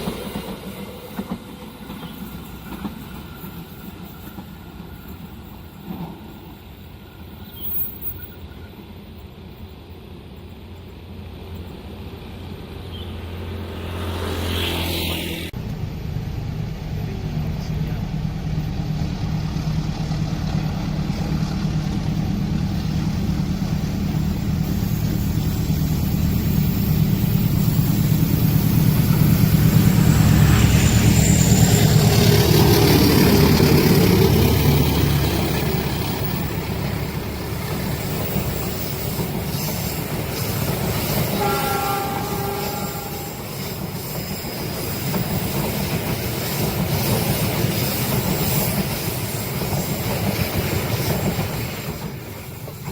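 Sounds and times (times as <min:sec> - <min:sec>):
train engine humming: 0:00.0 - 0:52.9
wagons rolling on rails: 0:19.2 - 0:41.5, 0:42.4 - 0:52.9.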